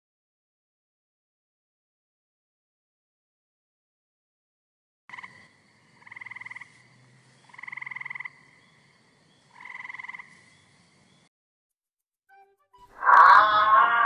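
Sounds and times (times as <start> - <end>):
tree frog croaking: 5.1 - 10.5, 13.0 - 14.0.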